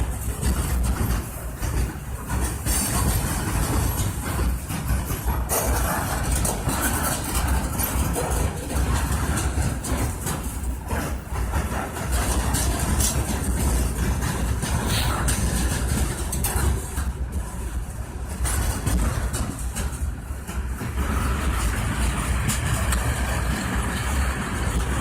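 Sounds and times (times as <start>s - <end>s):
diesel locomotive engine rumble: 0.0s - 25.0s.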